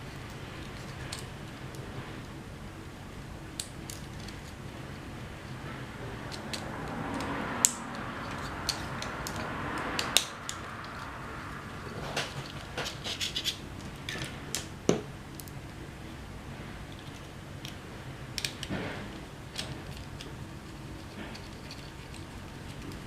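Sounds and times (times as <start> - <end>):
plastic parts clicking and scraping: 5.5 - 14.7, 18.4 - 23.0.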